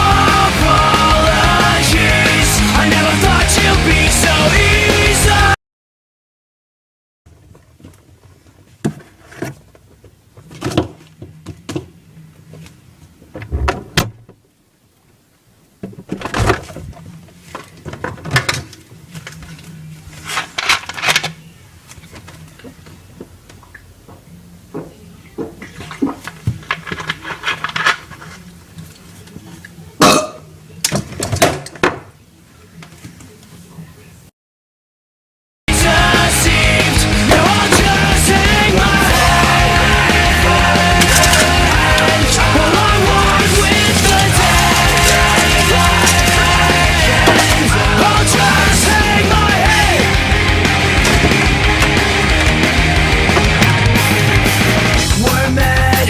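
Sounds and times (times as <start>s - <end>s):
rustling: 40.4s - 49.1s.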